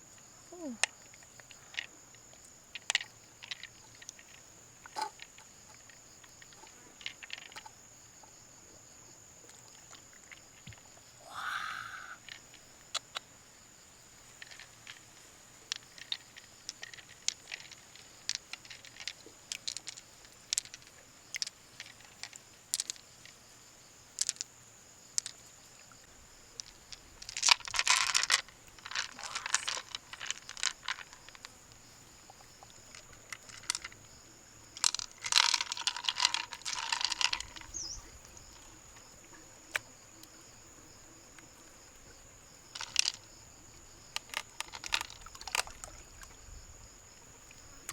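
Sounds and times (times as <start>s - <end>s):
shells scraping and clattering: 26.6s - 31.5s, 34.8s - 38.0s.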